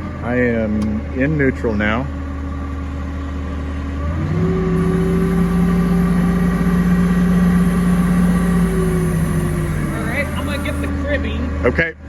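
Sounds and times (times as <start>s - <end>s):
forklift engine revving: 4.0s - 11.0s.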